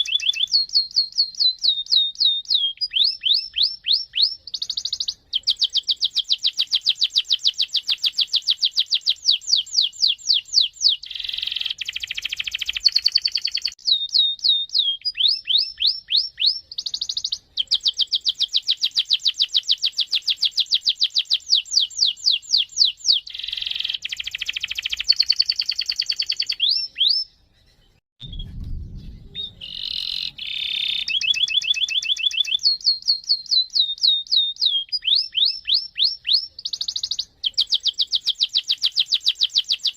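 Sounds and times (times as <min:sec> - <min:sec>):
canary singing trills: 0:00.0 - 0:39.9
low rumble: 0:28.2 - 0:30.7.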